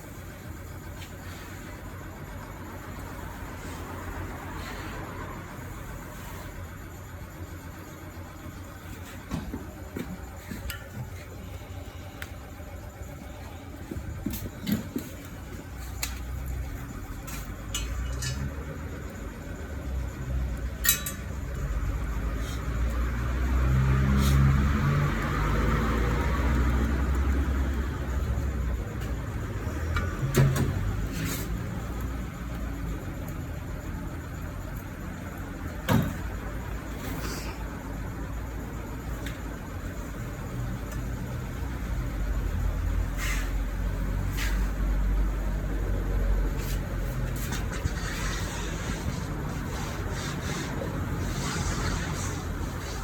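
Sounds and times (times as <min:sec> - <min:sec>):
tools and wheel parts clanking: 0:08.8 - 0:11.6, 0:13.1 - 0:19.2, 0:20.6 - 0:23.0, 0:46.5 - 0:53.0
metallic clinks of tools: 0:17.7 - 0:18.7, 0:20.8 - 0:21.6.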